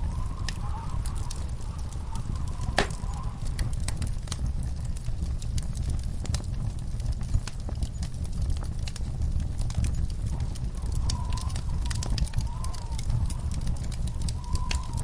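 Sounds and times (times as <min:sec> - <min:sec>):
wood fire crackling: 0:00.0 - 0:15.0
faint wavering whistle: 0:14.3 - 0:15.0.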